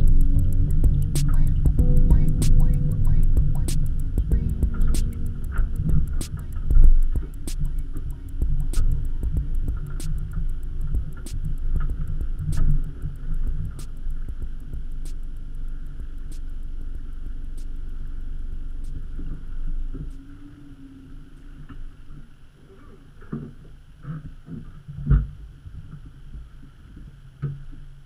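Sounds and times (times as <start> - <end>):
faint ticking: 0.0 - 19.0.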